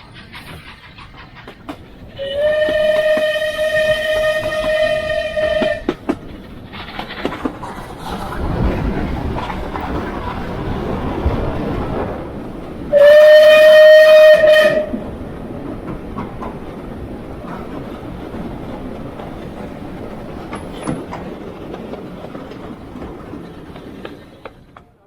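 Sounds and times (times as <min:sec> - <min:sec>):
train rumble and wheel clicks: 0:00.0 - 0:25.0
train whistle blast: 0:02.2 - 0:05.9, 0:12.9 - 0:15.1.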